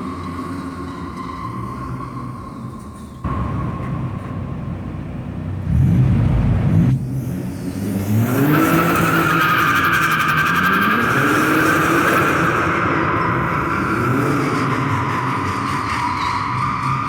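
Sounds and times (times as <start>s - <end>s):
car engine revving: 5.4s - 17.0s.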